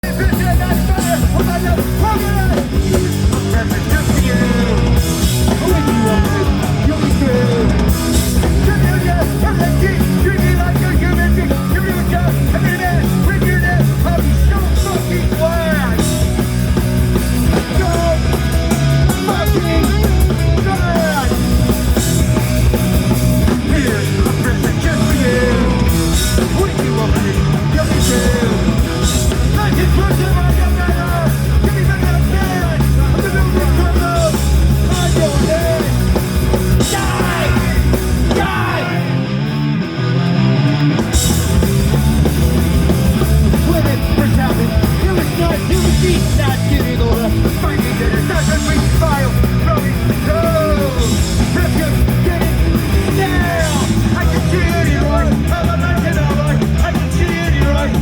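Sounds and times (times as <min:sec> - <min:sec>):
punk band playing: 0:00.0 - 0:58.0
person shouting vocals: 0:04.1 - 0:07.8, 0:36.8 - 0:39.2, 0:50.3 - 0:51.2.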